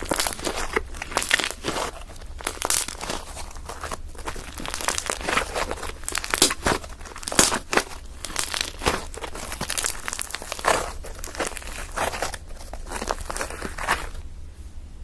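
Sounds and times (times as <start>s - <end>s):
slime squeezed crackling pops: 0.0s - 14.2s.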